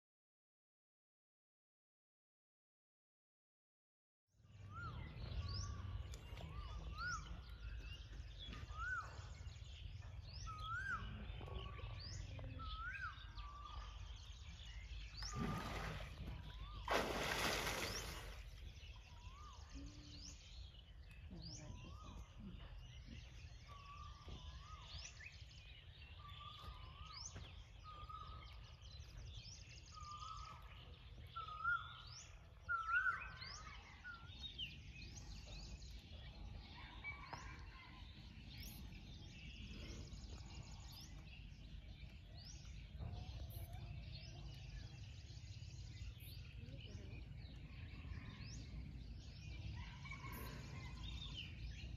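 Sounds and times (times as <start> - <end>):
birds chirping and trilling: 4.4 - 51.9.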